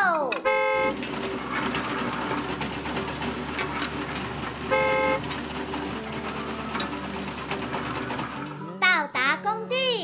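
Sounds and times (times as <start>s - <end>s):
horn beep: 0.4s - 1.0s, 4.6s - 5.3s
vehicle engine sound effect: 0.5s - 8.5s.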